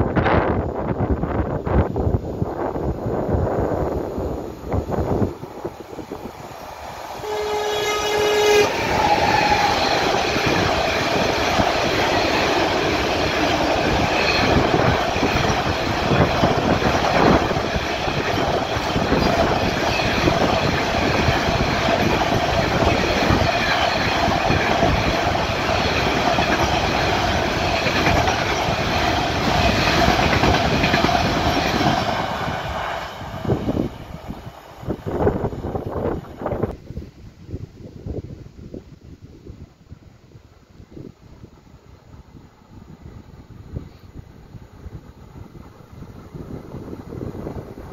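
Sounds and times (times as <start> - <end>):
freight train wheels clattering: 5.7 - 36.7
locomotive horn blast: 7.2 - 10.0.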